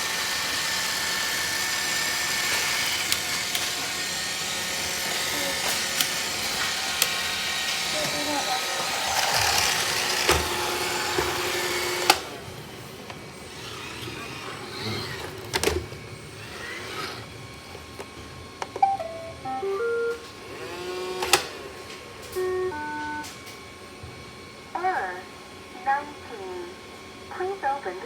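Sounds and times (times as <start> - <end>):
robot vacuum whirring: 0.0 - 18.2, 20.3 - 23.0.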